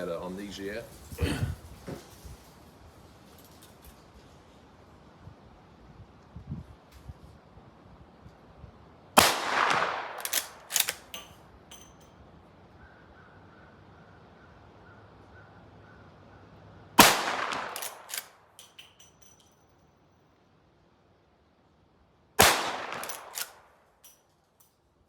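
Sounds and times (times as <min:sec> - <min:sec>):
rifle shots with echo: 0:09.2 - 0:11.3, 0:17.0 - 0:18.4, 0:22.4 - 0:23.8
rifle lever metallic clacks: 0:10.1 - 0:12.1, 0:17.5 - 0:19.5, 0:22.9 - 0:24.2.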